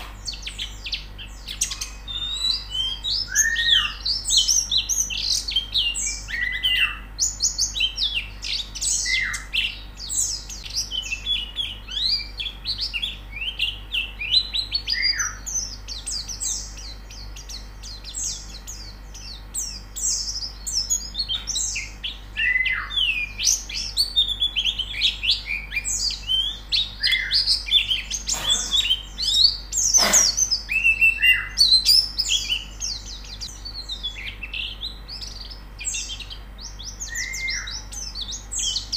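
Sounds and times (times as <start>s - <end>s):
flock of birds chirping: 0.0s - 38.9s
short noisy sounds: 29.9s - 30.6s.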